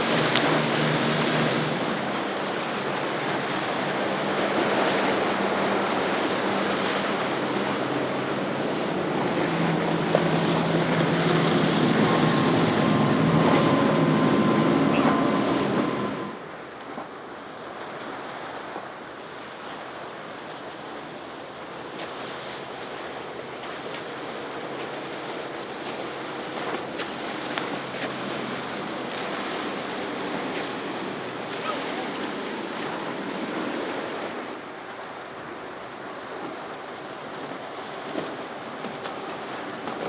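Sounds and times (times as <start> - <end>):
wind on microphone: 0.0 - 16.4
waves washing: 0.0 - 17.1, 21.7 - 40.0
powerboat engines passing: 0.0 - 40.0.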